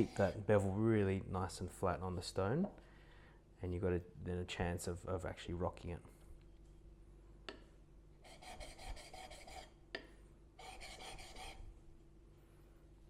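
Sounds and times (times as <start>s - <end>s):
chisel rubbing on sharpening plate: 0.0s - 0.4s, 8.2s - 9.8s, 10.6s - 11.6s.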